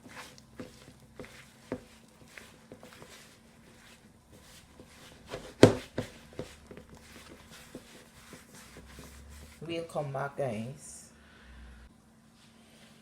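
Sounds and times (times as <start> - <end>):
dough mixing taps and knocks: 0.0 - 9.6.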